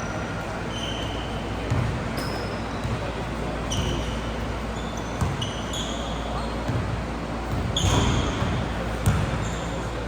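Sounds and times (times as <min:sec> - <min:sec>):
sneaker squeaks: 0:00.0 - 0:10.0
basketball bouncing on court: 0:01.6 - 0:03.1, 0:05.2 - 0:05.6, 0:06.6 - 0:09.6.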